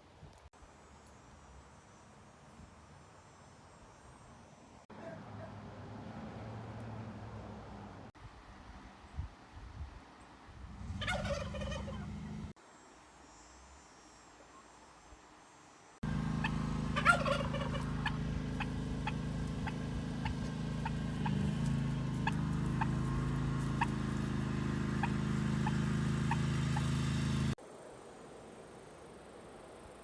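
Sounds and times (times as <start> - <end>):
falling poultry call: 10.9 - 12.3, 16.1 - 27.1.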